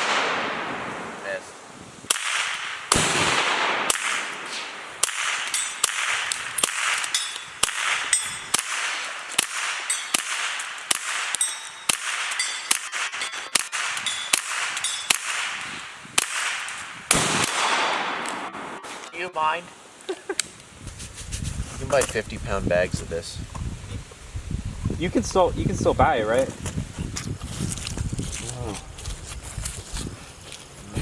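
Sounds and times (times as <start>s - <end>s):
gunshots with echo: 0.0s - 1.4s, 2.1s - 19.1s.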